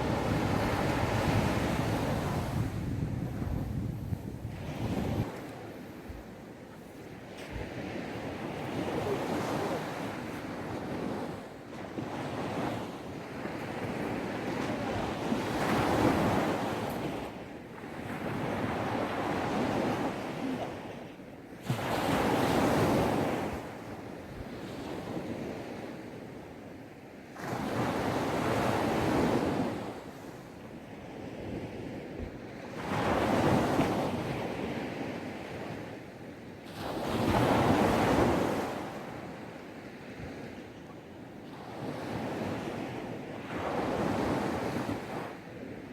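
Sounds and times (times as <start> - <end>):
sea waves breaking on sand: 0.0 - 3.8
wind on microphone: 0.0 - 6.4.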